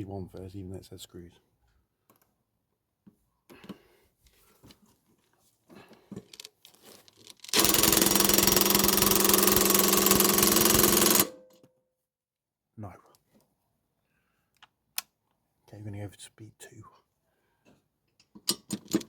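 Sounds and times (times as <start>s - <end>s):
impact driver hammering bolt: 7.5s - 11.4s.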